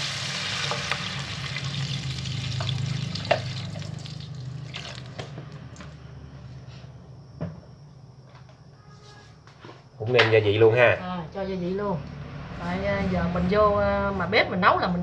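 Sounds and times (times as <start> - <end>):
water sizzling in a hot pot: 0.0 - 5.3.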